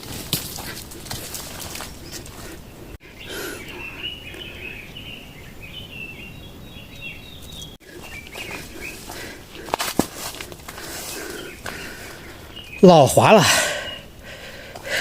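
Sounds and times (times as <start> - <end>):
footsteps rustling on trail: 0.0 - 3.0, 7.4 - 12.8
small birds chirping: 0.0 - 15.0.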